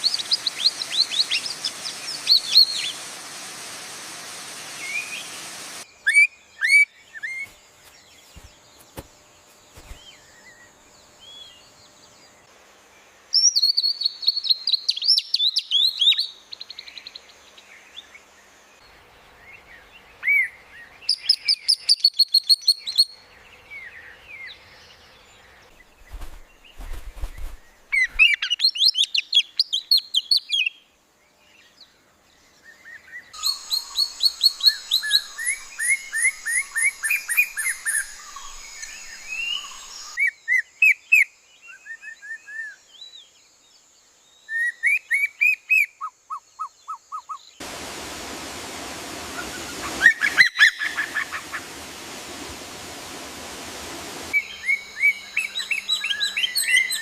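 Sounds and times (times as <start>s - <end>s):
steady hiss: 0.0s - 5.9s, 24.7s - 28.6s, 33.4s - 40.2s, 47.6s - 57.0s
songbirds chirping and trilling: 4.6s - 57.0s.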